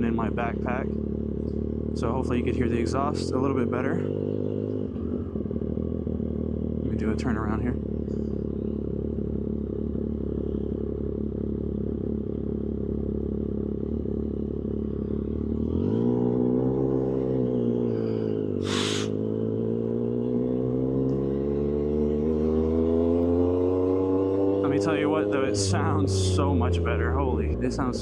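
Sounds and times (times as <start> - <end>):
motorcycle engine accelerating: 0.0 - 28.0
gear shift burst: 17.9 - 19.3.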